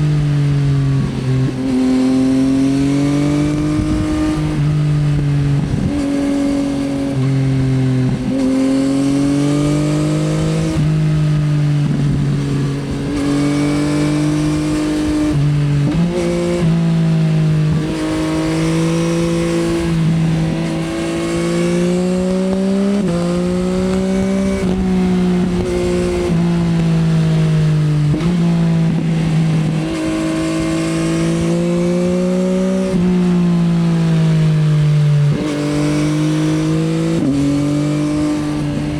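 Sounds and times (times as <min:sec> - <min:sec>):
motorcycle exhaust shifting gears: 0:00.0 - 0:38.9.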